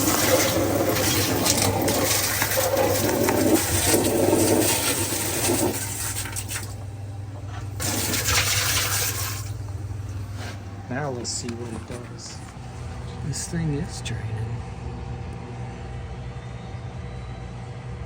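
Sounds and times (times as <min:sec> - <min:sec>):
water splashing into dishwasher: 0:00.0 - 0:06.9, 0:07.7 - 0:09.8
steady low hum: 0:00.0 - 0:18.0.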